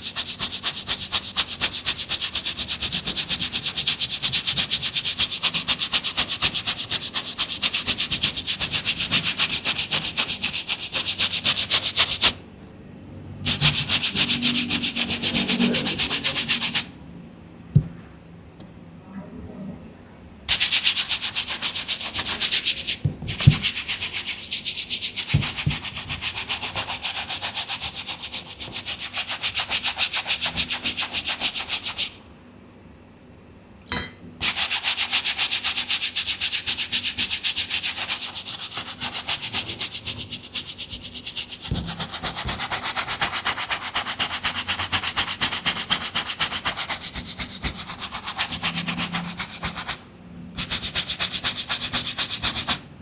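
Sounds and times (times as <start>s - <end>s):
brush scrubbing a sneaker: 0.0s - 12.4s, 13.5s - 16.9s, 20.5s - 32.2s, 34.4s - 50.0s, 50.6s - 52.8s.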